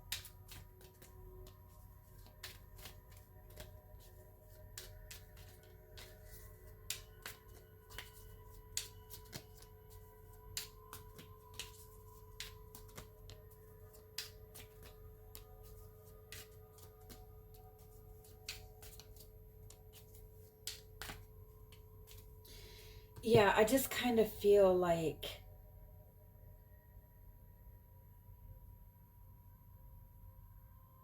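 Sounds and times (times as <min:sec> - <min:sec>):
cards being shuffled: 0:00.0 - 0:22.4.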